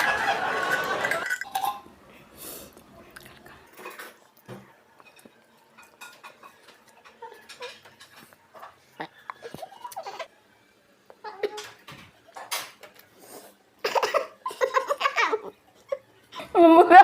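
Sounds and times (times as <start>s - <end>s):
people laughing: 0.0s - 1.4s
cutlery clinking on plates: 0.5s - 1.9s, 3.7s - 10.0s, 11.4s - 13.1s.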